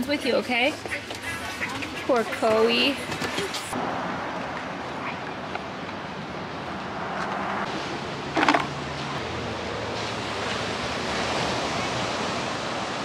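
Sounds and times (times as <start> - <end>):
ocean surf: 3.7 - 13.0.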